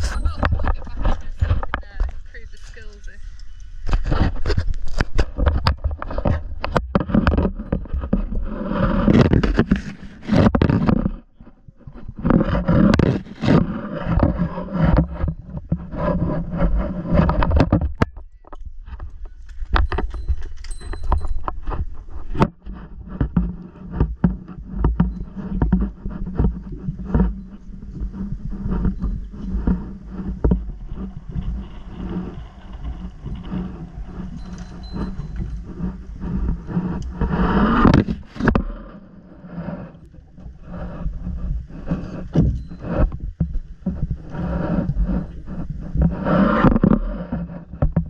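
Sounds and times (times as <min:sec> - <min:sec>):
boat engine humming: 0:00.0 - 0:06.6, 0:18.7 - 0:46.6
scuba gear clanking: 0:00.0 - 0:48.0.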